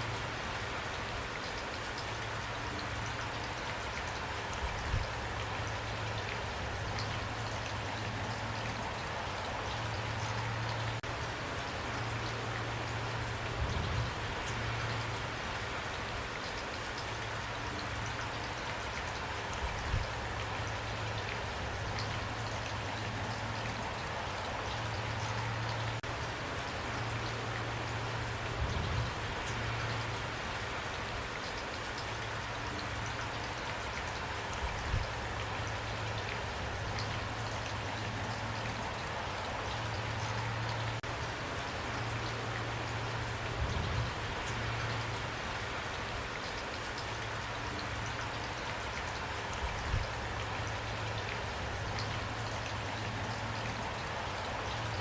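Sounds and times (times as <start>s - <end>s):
rain patter: 0.0s - 55.0s.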